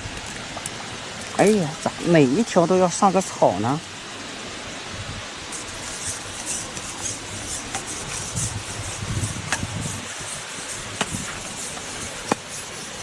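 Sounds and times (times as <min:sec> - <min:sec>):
rustling and scraping: 0:05.5 - 0:13.0.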